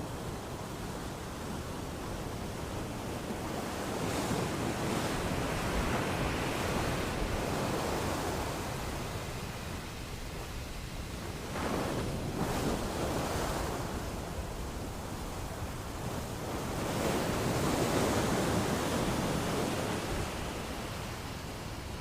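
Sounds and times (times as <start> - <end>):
ocean waves breaking: 11.2 - 22.0.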